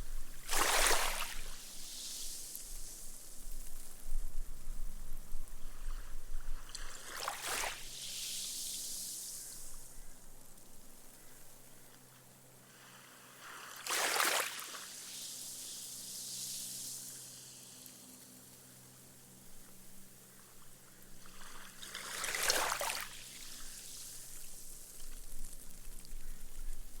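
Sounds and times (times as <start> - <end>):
waves lapping on sand: 0.4 - 3.4, 6.6 - 10.0, 12.7 - 18.5, 21.0 - 26.0
foam fizzing: 6.8 - 9.9, 12.8 - 18.1.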